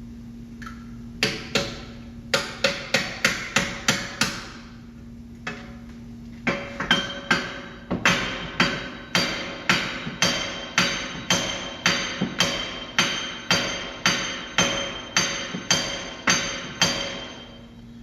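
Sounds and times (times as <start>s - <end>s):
hammer striking metal: 1.2s - 4.6s, 6.5s - 17.6s.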